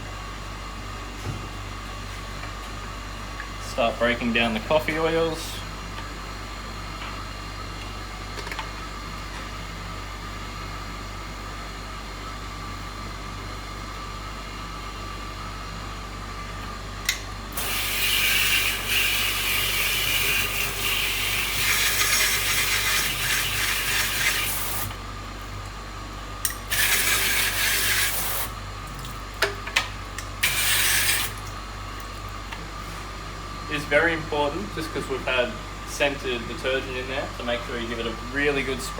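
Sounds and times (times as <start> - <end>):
water sprayer hissing: 17.6 - 24.9, 26.7 - 28.5, 30.4 - 31.4.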